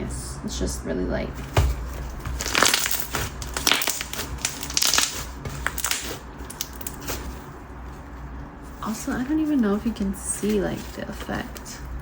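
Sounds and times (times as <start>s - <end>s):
slime crackling when squeezed: 2.4s - 7.3s.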